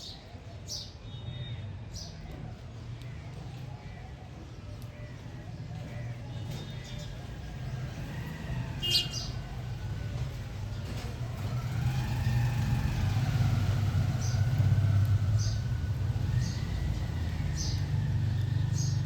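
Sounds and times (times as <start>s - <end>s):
vehicle passing close by: 7.7s - 19.0s
high bird chirps: 8.8s - 9.4s.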